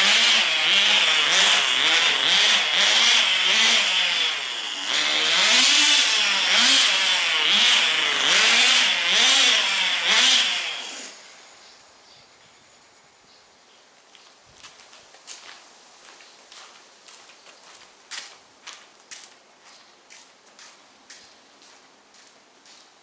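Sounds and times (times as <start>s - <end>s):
rc car engine buzzing and revving: 0.0s - 11.4s.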